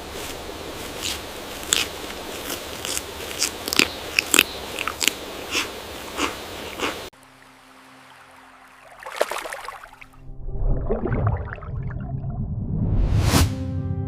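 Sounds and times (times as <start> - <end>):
steady hiss: 0.0 - 3.6
animal chewing and crunching: 0.9 - 7.1.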